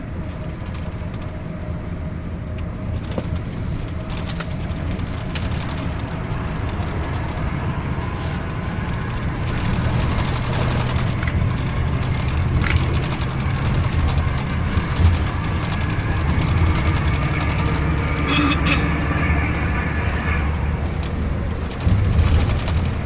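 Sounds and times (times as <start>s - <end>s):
bus engine hum: 0.0s - 23.0s
road noise: 0.0s - 23.0s.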